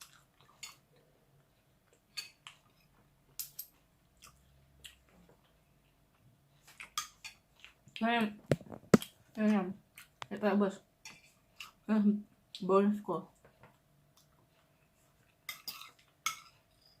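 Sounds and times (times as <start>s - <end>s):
chewing clicks and smacks: 4.2s - 5.6s.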